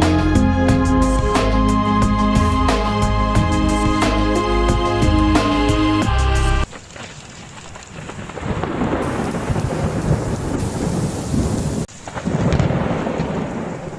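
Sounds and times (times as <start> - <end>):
rain falling: 6.5 - 13.9
rolling thunder: 8.0 - 13.9.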